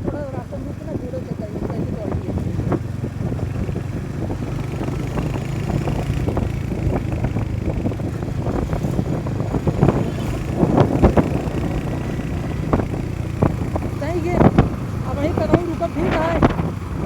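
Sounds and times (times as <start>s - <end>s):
motorcycle engine running: 0.0s - 17.0s
wind noise on microphone: 0.0s - 17.0s.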